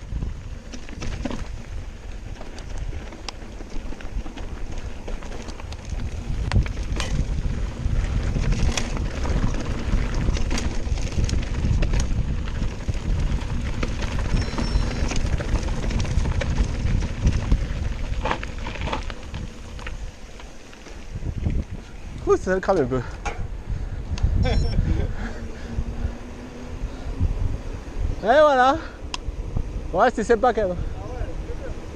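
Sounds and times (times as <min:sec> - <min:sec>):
bike rattling over bumps: 0:00.0 - 0:31.9
wind buffeting microphone: 0:00.0 - 0:31.9
tyres rumbling on loose ground: 0:00.2 - 0:23.8.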